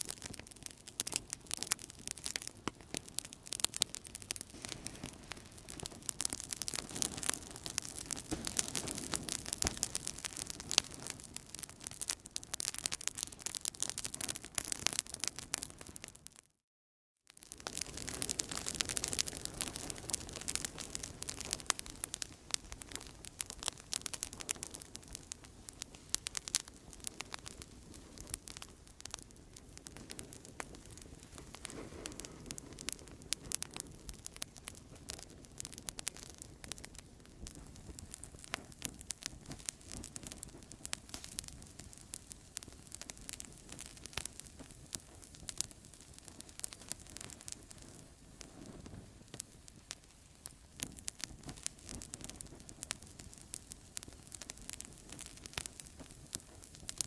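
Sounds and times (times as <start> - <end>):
campfire crackling and popping: 0.0 - 16.4, 17.3 - 57.0
soft steady hiss of fire: 0.0 - 16.4, 17.3 - 57.0.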